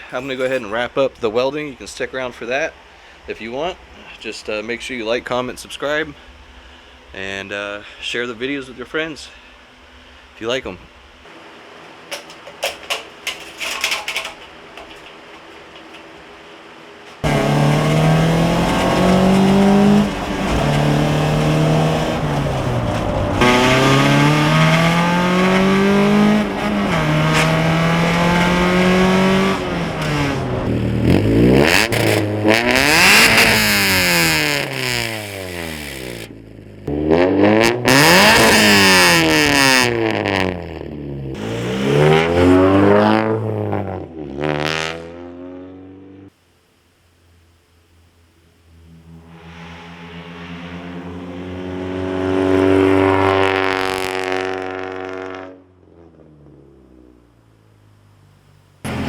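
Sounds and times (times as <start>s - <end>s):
car engine revving: 17.1s - 45.9s, 48.6s - 57.4s.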